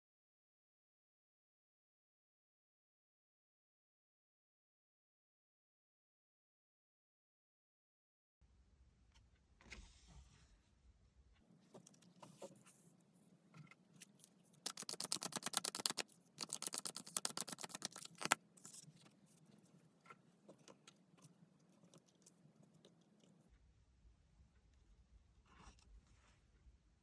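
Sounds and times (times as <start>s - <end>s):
cards being shuffled: 14.0s - 18.9s
rapid card clicks: 14.6s - 18.8s.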